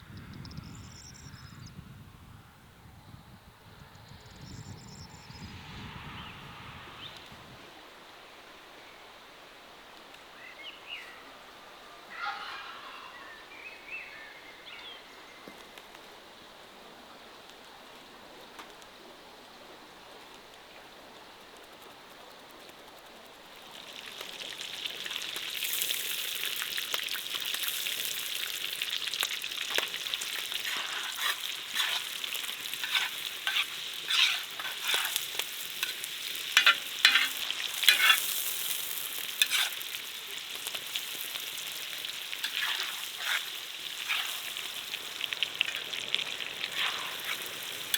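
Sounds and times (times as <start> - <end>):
food sizzling in hot oil: 23.5 - 47.9.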